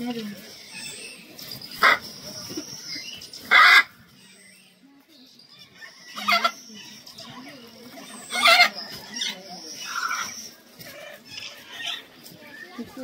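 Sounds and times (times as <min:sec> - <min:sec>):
harsh bird squawks: 0:00.5 - 0:04.0.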